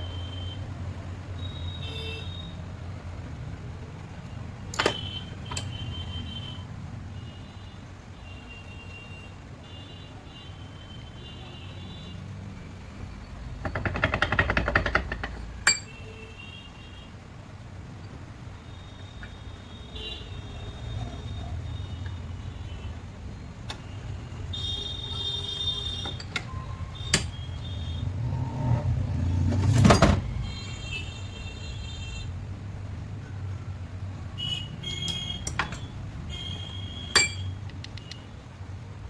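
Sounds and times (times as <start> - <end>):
metal parts and tools clinking: 4.7 - 5.7, 13.6 - 16.0, 26.0 - 27.4, 35.0 - 35.9, 37.1 - 37.6.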